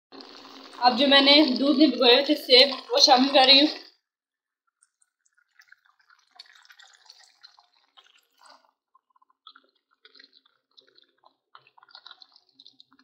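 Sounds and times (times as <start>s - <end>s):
small pops and spits: 4.7s - 13.0s.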